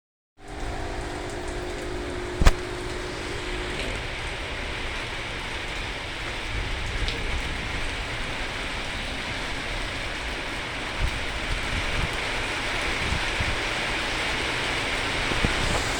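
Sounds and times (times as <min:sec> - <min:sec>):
low rumble: 0:00.4 - 0:04.4
heavy rain on hard surfaces: 0:00.4 - 0:15.9.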